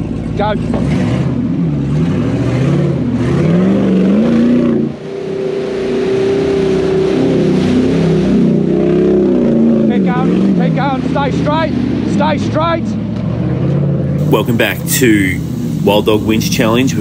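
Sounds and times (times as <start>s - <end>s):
engine revving hard: 0.7s - 12.6s.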